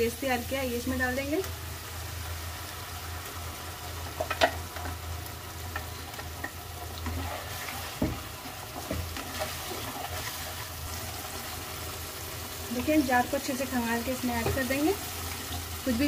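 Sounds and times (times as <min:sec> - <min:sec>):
paste sizzling in hot oil: 0:00.0 - 0:16.0
spatula scraping and stirring: 0:05.7 - 0:11.6.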